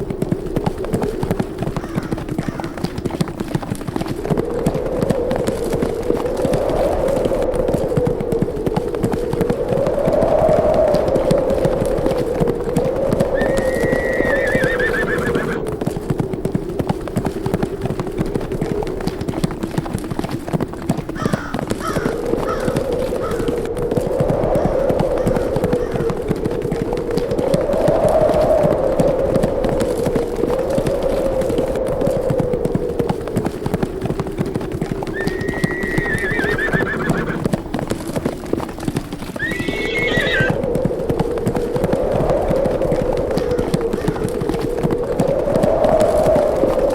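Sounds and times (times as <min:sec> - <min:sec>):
horses galloping: 0:00.0 - 0:46.9
steady wind: 0:00.0 - 0:46.9
horse whinnying: 0:13.4 - 0:15.6, 0:35.1 - 0:37.4, 0:39.4 - 0:40.6.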